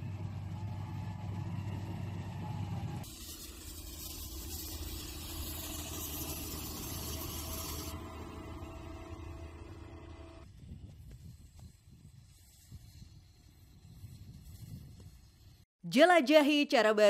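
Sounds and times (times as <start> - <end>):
vehicle engine running: 0.0 - 10.5.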